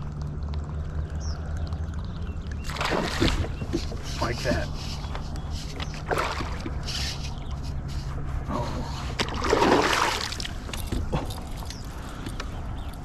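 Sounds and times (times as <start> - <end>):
water splash: 2.5 - 4.7, 6.0 - 7.1, 9.2 - 10.7.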